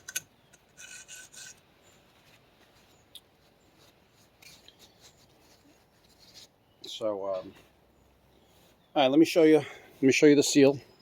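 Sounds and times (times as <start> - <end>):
hand rubbing on metal: 0.7 - 6.6.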